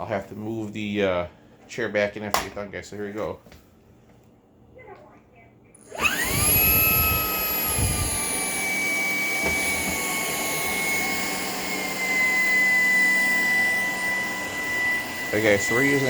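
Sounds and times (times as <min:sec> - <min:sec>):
cordless vacuum motor whine: 0:05.8 - 0:16.0.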